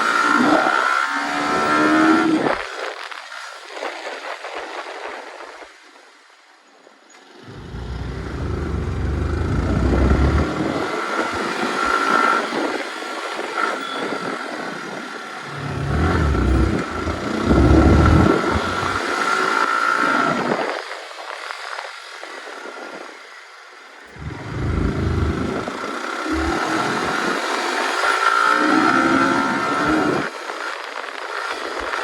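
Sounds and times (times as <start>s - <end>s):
motorcycle engine running: 7.4s - 12.0s, 15.4s - 19.2s, 24.2s - 27.3s
wind buffeting microphone: 7.5s - 12.0s, 15.4s - 19.1s, 24.2s - 27.4s.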